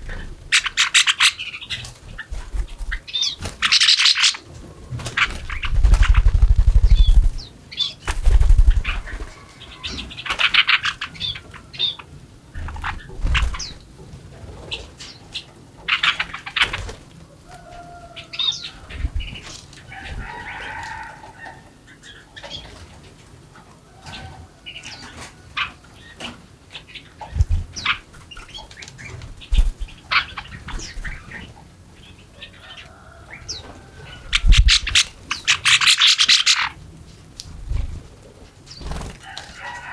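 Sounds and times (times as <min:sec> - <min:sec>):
wings fluttering: 0:00.0 - 0:11.0, 0:12.6 - 0:13.8, 0:16.0 - 0:21.0, 0:27.2 - 0:31.4, 0:34.0 - 0:36.8, 0:37.5 - 0:39.9
small birds chirping: 0:00.0 - 0:13.9, 0:14.6 - 0:22.8, 0:24.6 - 0:39.9.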